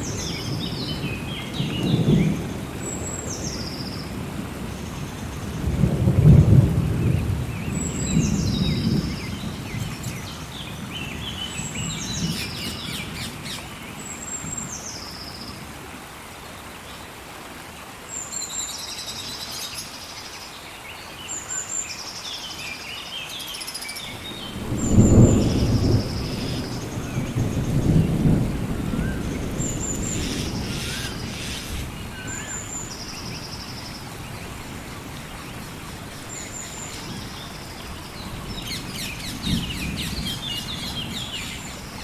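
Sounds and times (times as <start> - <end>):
steady rain: 0.0 - 42.0
thunder rumbling: 5.5 - 13.3, 24.1 - 32.5, 37.0 - 42.0
birds short high calls: 29.0 - 33.4.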